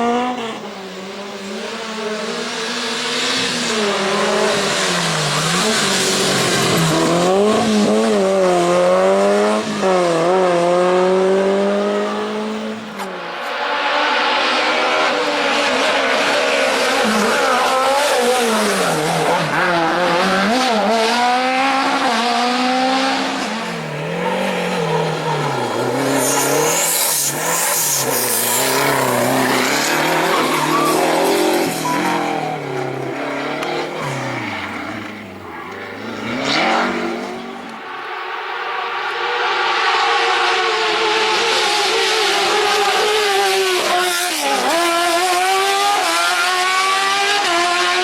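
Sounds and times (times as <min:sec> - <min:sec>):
car engine revving: 0:00.0 - 0:48.0
tyres squealing: 0:24.0 - 0:33.3.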